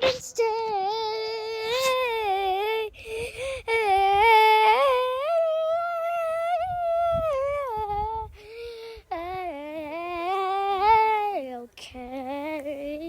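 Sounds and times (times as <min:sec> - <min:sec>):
child breathing: 0:02.9 - 0:03.8, 0:08.3 - 0:09.1.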